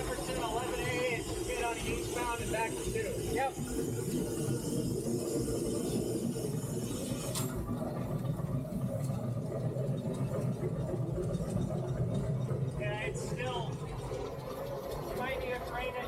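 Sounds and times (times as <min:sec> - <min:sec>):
steam locomotive running: 0:00.0 - 0:16.0.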